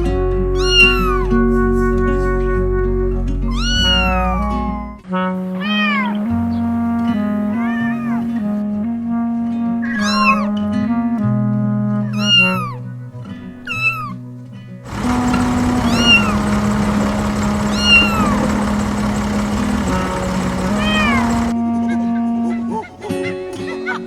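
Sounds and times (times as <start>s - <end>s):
gentle background music: 0.0s - 14.9s
cat meowing: 0.6s - 1.3s, 3.5s - 6.7s, 7.5s - 8.4s, 9.8s - 10.6s, 12.0s - 12.8s, 13.7s - 14.2s, 15.8s - 16.4s, 17.7s - 18.4s, 20.7s - 21.3s.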